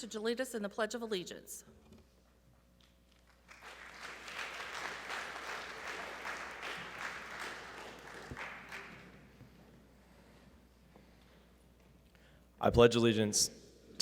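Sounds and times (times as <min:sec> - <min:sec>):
audience clapping: 0:03.1 - 0:09.6.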